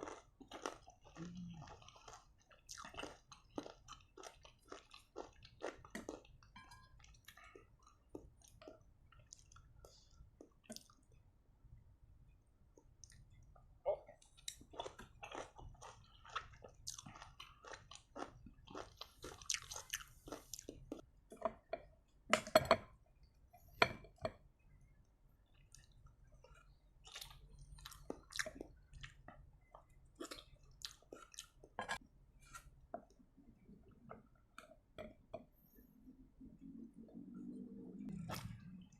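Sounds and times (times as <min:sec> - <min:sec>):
chewing and crunching: 0:00.0 - 0:11.2, 0:14.2 - 0:21.7, 0:25.4 - 0:32.0.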